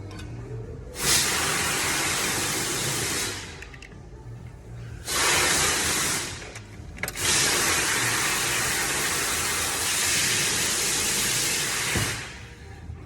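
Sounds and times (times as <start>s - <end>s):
hissing rushing air: 5.0s - 6.4s.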